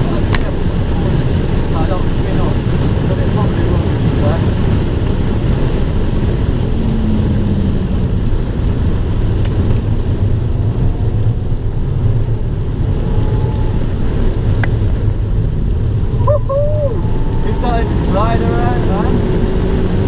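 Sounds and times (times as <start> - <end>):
car engine running: 0.0 - 20.0
road and wind noise: 0.0 - 20.0.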